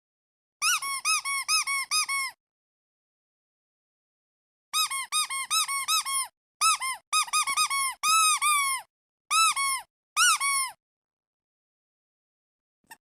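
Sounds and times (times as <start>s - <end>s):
rubber duck toy squeaking: 0.6s - 2.4s, 4.8s - 10.8s.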